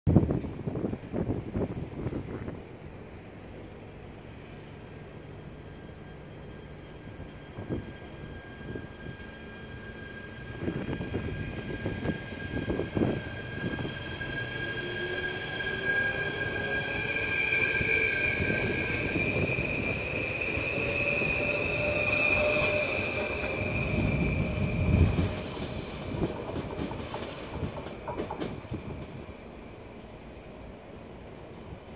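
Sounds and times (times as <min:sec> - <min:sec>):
train wheels rumbling: 0:00.2 - 0:31.9
high squealing tones: 0:04.8 - 0:26.2
electric train drive whining: 0:05.2 - 0:29.4.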